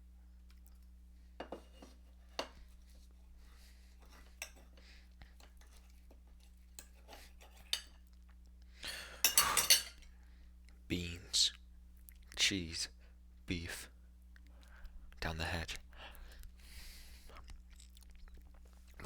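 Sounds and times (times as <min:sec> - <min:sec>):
plate and utensils clicking: 0:09.2 - 0:10.0.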